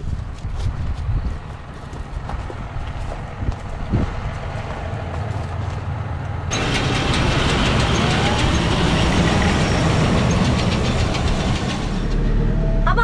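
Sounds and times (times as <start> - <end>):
tractor engine running: 1.4 - 12.7
rattling clatter: 6.4 - 12.3.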